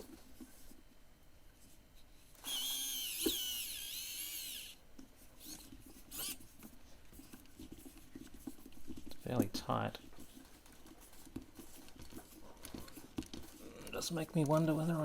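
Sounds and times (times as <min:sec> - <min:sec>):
electric screwdriver whining: 0:02.4 - 0:04.8, 0:05.4 - 0:06.4.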